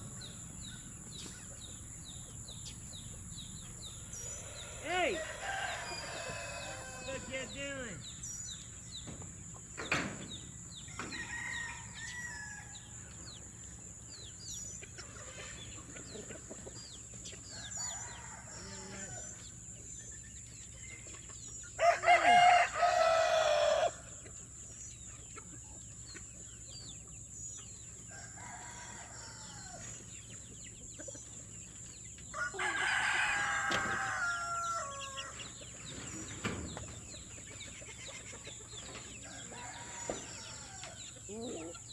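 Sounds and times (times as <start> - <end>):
chickens clucking: 0.0 - 41.9
rooster crowing: 4.2 - 7.6, 10.9 - 13.0, 17.5 - 19.4, 21.8 - 24.1, 28.1 - 29.8, 32.3 - 35.4, 39.2 - 41.6.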